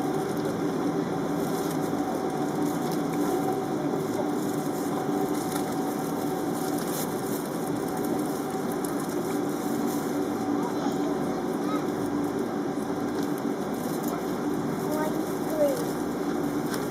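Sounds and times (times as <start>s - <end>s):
engine and ventilation hum: 0.0s - 16.9s.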